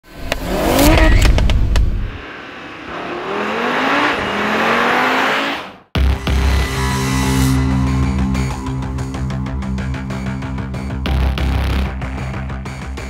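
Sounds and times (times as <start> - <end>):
car engine revving and accelerating: 0.1 - 1.4, 2.0 - 6.6
music with heavy beat: 6.0 - 13.0.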